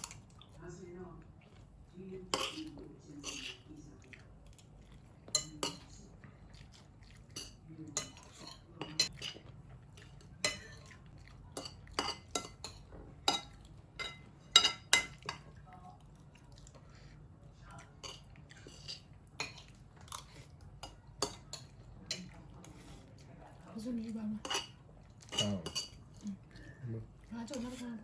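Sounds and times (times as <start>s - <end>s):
cutlery clinking against dishes: 2.3s - 3.7s, 5.2s - 6.0s, 7.2s - 15.6s, 18.0s - 23.0s, 24.4s - 26.2s.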